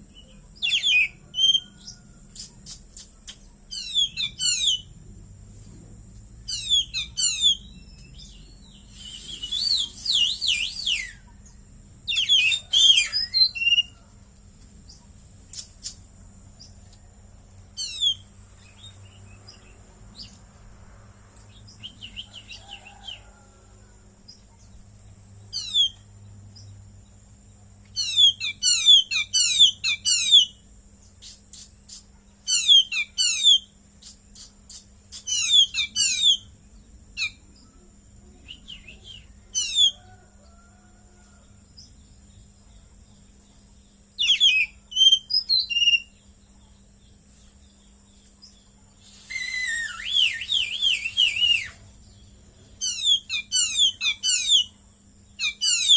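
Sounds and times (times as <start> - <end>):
bird singing rapid chirps: 0.0 - 5.0, 6.4 - 14.0, 17.8 - 20.4, 25.4 - 26.0, 27.9 - 37.7, 44.0 - 46.4, 48.4 - 55.9
faint high whine: 0.0 - 55.9.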